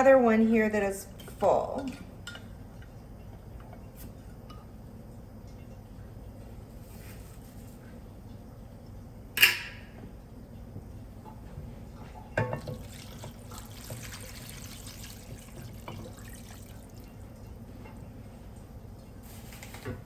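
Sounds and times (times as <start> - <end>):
broth splashing into pot: 12.3 - 17.7.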